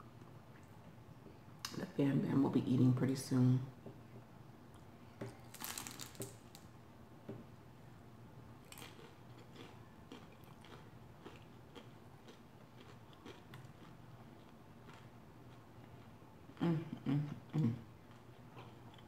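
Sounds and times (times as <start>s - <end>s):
person chewing crunchily: 5.4s - 6.3s, 8.6s - 16.7s.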